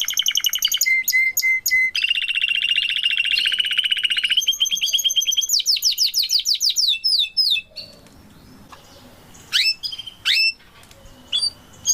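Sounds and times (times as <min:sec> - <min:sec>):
canary trilling: 0:00.0 - 0:08.1, 0:08.8 - 0:11.9
canary rising call notes: 0:08.9 - 0:11.9.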